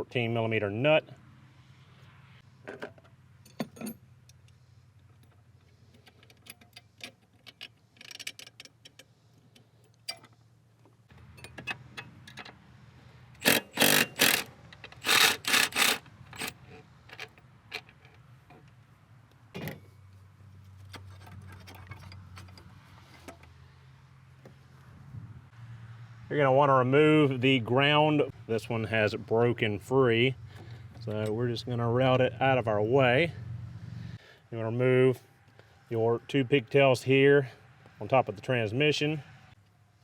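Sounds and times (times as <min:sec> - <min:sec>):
ratchet wrench clicking: 0:13.4 - 0:16.6.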